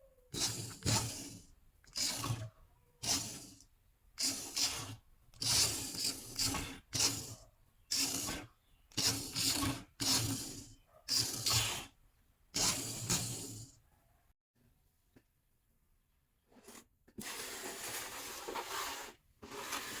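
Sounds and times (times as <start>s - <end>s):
short rasping rubbing bursts: 0.4s - 3.6s, 4.2s - 12.0s, 12.6s - 13.8s.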